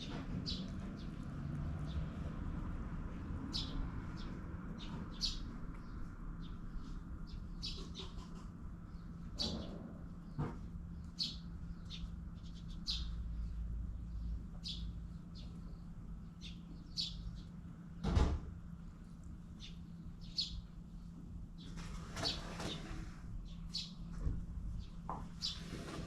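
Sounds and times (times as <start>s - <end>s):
small birds chirping: 0.0s - 18.0s, 18.7s - 26.0s
scraping rustle: 21.6s - 23.3s, 25.4s - 26.0s.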